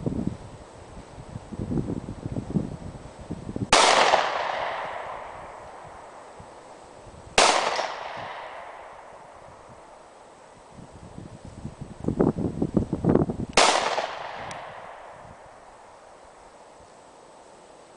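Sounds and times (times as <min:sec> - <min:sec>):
wind rumble on microphone: 0:00.0 - 0:15.9
pistol shots with echo: 0:03.7 - 0:05.6, 0:07.4 - 0:09.2, 0:13.6 - 0:15.5.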